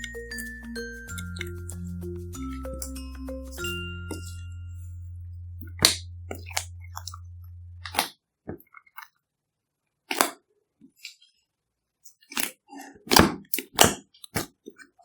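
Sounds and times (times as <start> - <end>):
slime popping and crackling: 5.6 - 7.2, 7.8 - 8.1.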